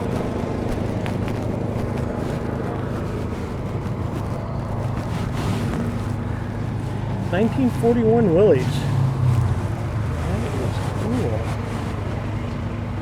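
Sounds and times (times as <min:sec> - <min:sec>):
wind on microphone: 0:00.0 - 0:08.0
low engine hum: 0:00.0 - 0:13.0.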